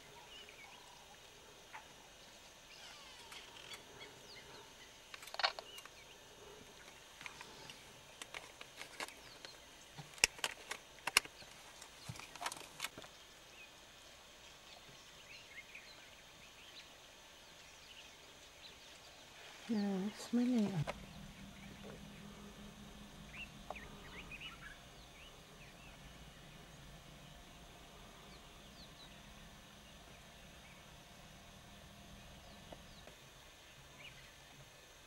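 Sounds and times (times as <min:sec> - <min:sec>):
birds chirping and calling: 0:19.7 - 0:33.2.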